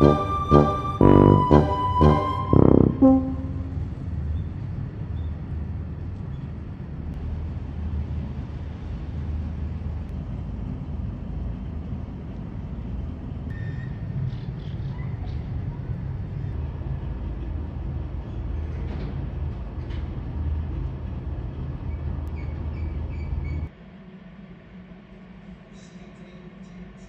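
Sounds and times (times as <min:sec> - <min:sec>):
background music: 0:00.0 - 0:03.9
low outdoor rumble: 0:00.0 - 0:27.0.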